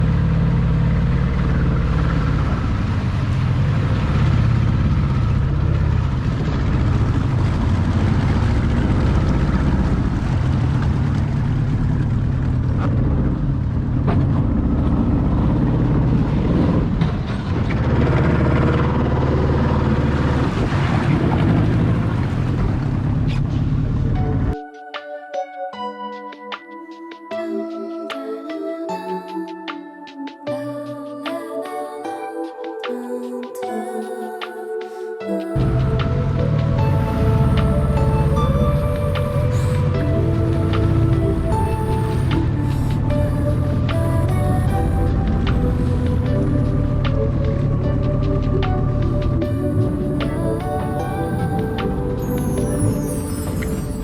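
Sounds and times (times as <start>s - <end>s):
boat engine humming: 0.0s - 24.6s, 35.6s - 53.8s.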